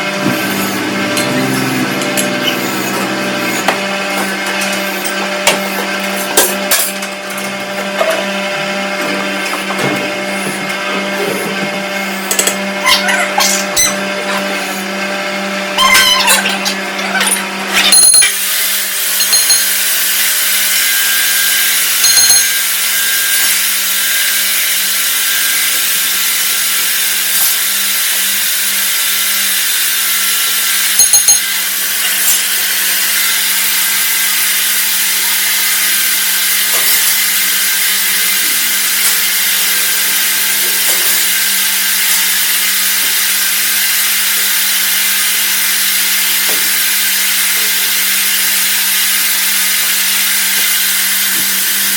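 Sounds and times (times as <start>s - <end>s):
lathe motor hum: 0.0s - 12.8s.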